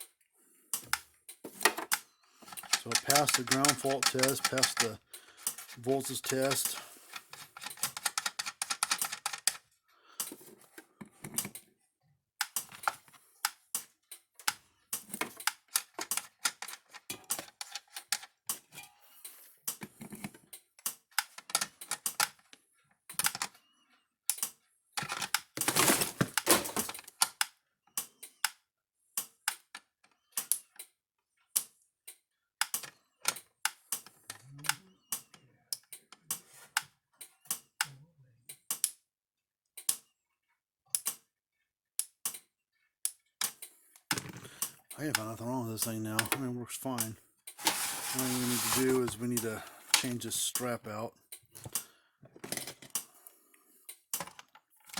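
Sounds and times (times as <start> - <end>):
sharp irregular clicks and clacks: 1.7 - 9.6, 12.4 - 18.6, 20.8 - 22.4, 43.4 - 47.7.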